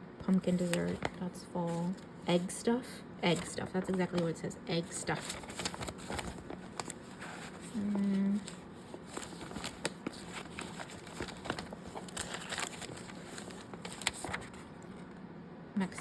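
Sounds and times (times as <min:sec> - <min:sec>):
paper cards rustling: 0:00.3 - 0:02.5, 0:03.3 - 0:15.1
person humming: 0:07.8 - 0:08.4.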